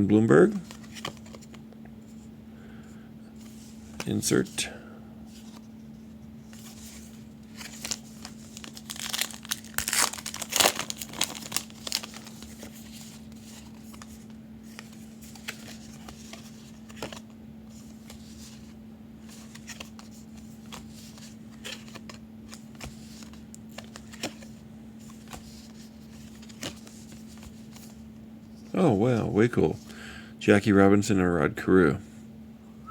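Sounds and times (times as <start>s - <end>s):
steady low hum: 0.0s - 32.9s
foil wrapper tearing and crinkling: 7.6s - 12.5s.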